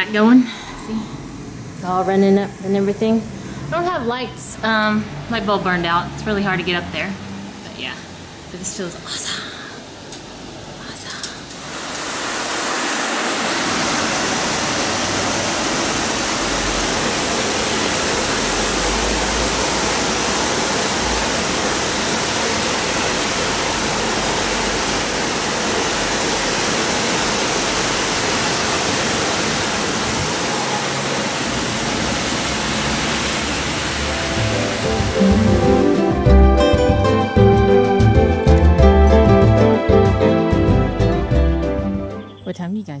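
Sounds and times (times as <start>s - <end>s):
heavy rain pouring: 0.0s - 42.1s
music: 34.1s - 42.6s.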